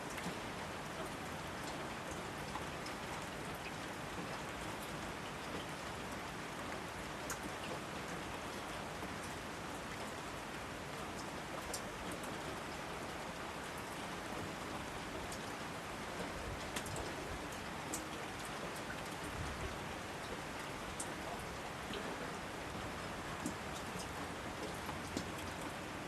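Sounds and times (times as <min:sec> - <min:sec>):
steady rainfall hiss: 0:00.0 - 0:26.0
raindrops ticking: 0:16.1 - 0:26.0.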